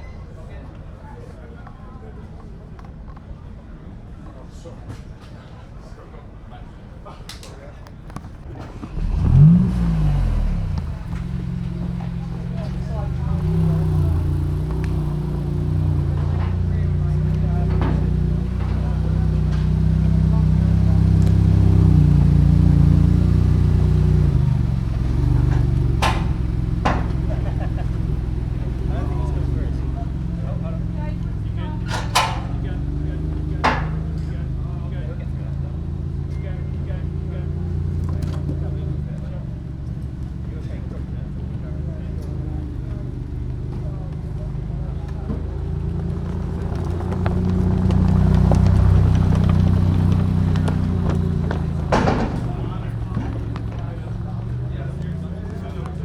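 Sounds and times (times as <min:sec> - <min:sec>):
car engine running: 0:07.9 - 0:56.0
sharp crack: 0:18.5 - 0:30.4.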